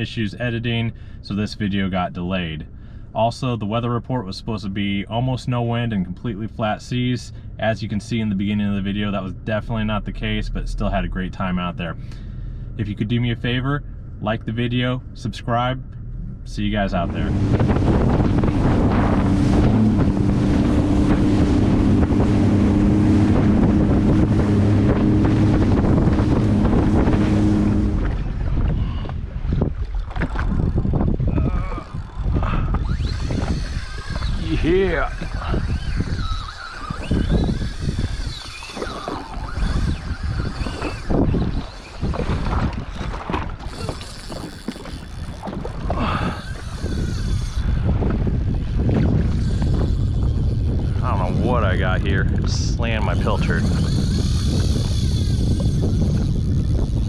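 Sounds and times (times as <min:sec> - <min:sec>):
jet ski engine running: 0:00.0 - 0:57.0
wind buffeting microphone: 0:00.0 - 0:57.0
water rushing: 0:16.6 - 0:46.8
faint wavering whine: 0:31.4 - 0:42.2.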